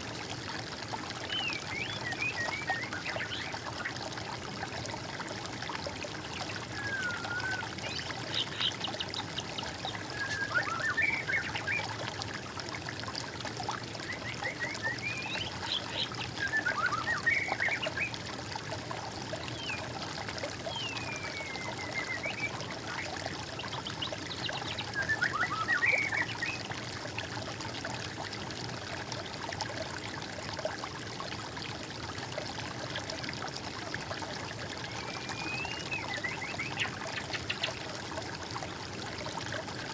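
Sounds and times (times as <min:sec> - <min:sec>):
water trickling: 0:00.0 - 0:39.9
songbird singing: 0:34.9 - 0:37.8.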